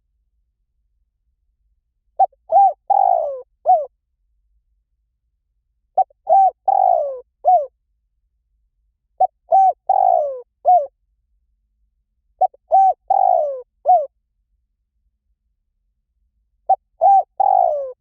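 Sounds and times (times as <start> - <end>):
dove cooing: 2.2 - 3.9, 6.0 - 7.7, 9.2 - 10.9, 12.4 - 14.1, 16.7 - 18.0.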